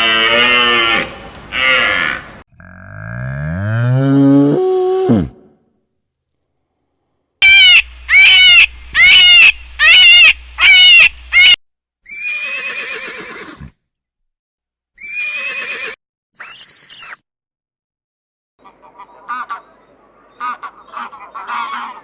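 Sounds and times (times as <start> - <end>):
farm animal calling: 0.0 - 2.4.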